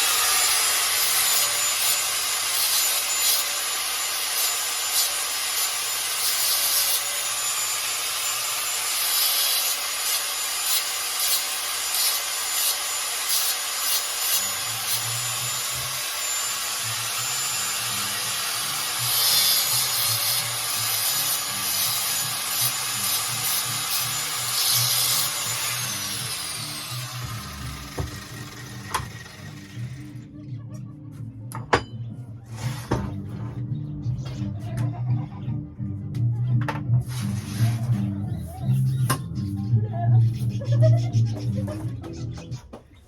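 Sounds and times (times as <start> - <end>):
angle grinder cutting metal: 0.0 - 30.3, 37.0 - 39.3.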